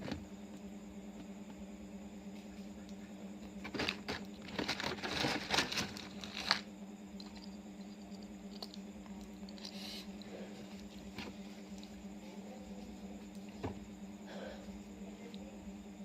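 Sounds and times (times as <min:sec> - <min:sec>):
steady low hum: 0:00.0 - 0:16.0
crinkling rustling handling noises: 0:03.6 - 0:06.7.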